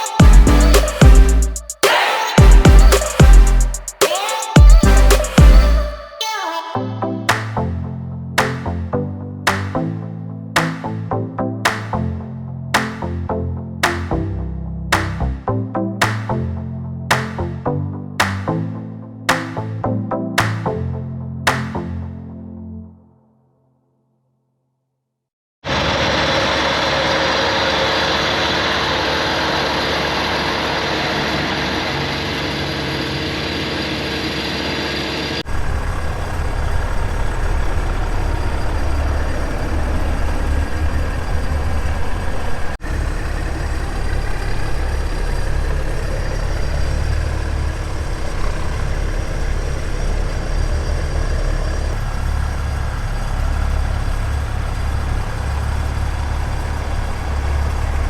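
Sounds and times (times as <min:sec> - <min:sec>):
heavy truck engines idling: 0:00.0 - 0:01.8, 0:25.7 - 0:58.0.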